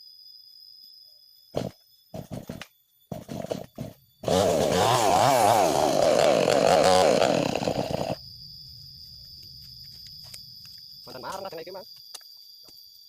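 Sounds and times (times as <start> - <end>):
chainsaw engine running: 3.1 - 8.2.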